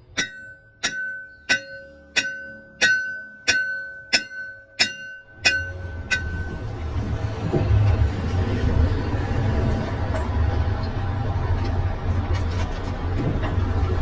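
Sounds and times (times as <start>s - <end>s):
hammer striking steel: 0.0s - 6.8s
steady low rumble: 0.0s - 14.0s.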